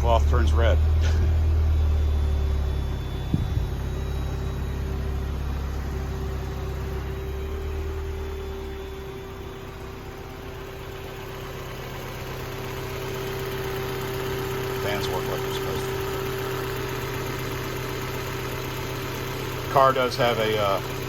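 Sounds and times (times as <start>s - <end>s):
steady hum: 0.0s - 17.6s
car engine idling: 0.0s - 21.0s.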